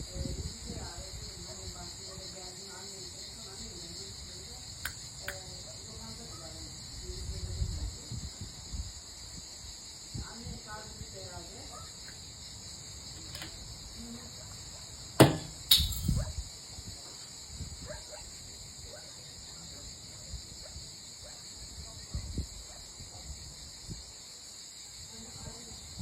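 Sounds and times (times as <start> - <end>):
insects droning: 0.0 - 26.0
loud sharp knocks: 15.2 - 15.8.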